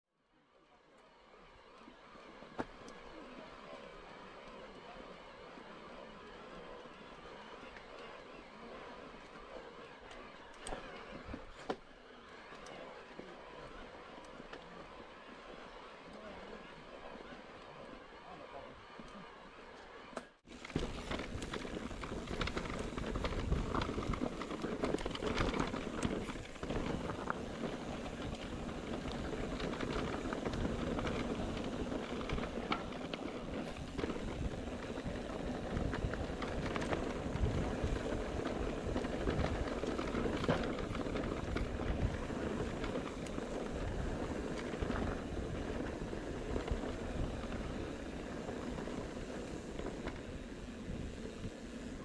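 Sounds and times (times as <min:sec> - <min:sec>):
bike rattles and knocks: 0:20.5 - 0:50.3
tyres rumbling on dirt: 0:20.5 - 0:52.0.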